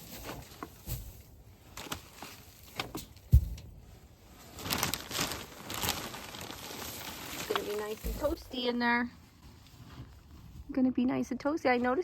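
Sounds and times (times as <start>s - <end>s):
straw rustling: 3.7s - 10.4s.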